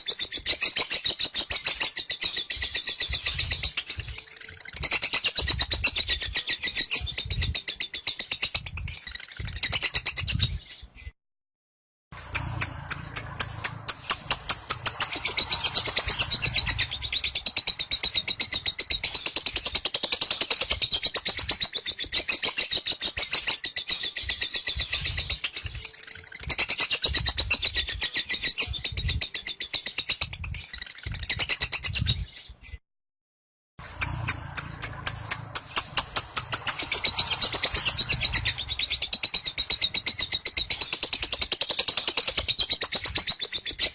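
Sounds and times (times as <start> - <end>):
bird chattering trill: 12.2 - 28.8, 33.8 - 43.9.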